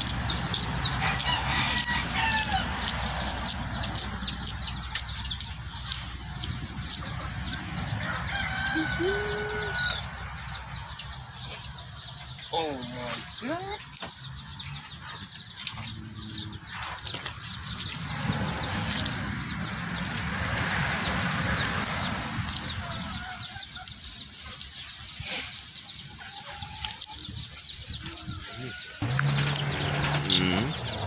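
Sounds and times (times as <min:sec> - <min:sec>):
birds clucking and chirping: 0:00.0 - 0:31.0.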